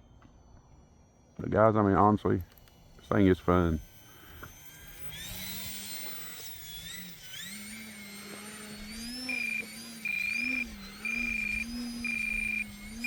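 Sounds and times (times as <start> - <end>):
electric motor whining: 1.4 - 13.0
high electronic beep: 9.3 - 13.0.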